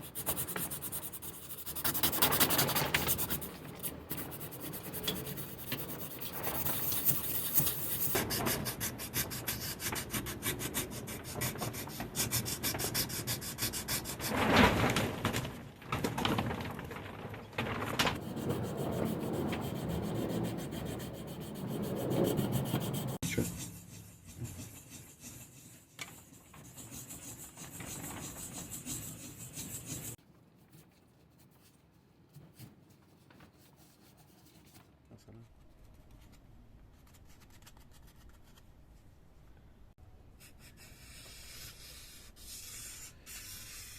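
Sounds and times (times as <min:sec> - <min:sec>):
wood being filed and sanded: 0:00.0 - 0:14.4, 0:18.2 - 0:30.2.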